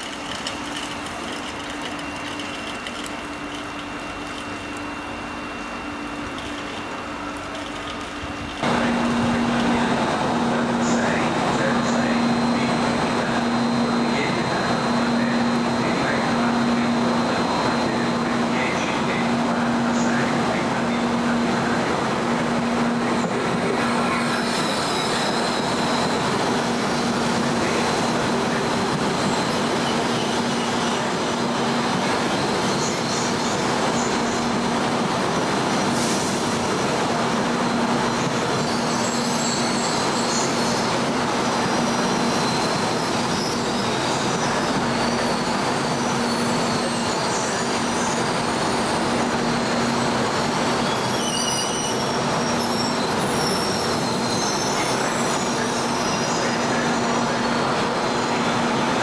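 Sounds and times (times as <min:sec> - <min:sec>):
train rolling: 0:00.0 - 0:59.0
wheel squeal: 0:41.6 - 0:57.6.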